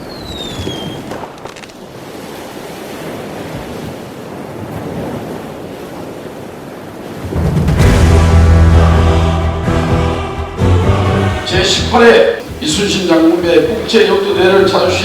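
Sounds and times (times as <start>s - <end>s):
sea waves: 0.0s - 15.0s
loud music: 7.5s - 13.1s.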